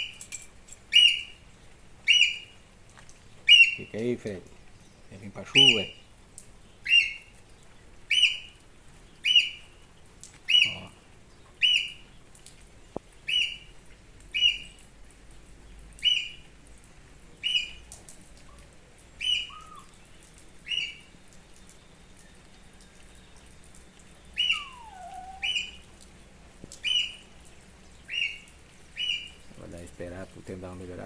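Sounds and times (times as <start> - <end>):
high sharp bird call: 24.4 - 25.8.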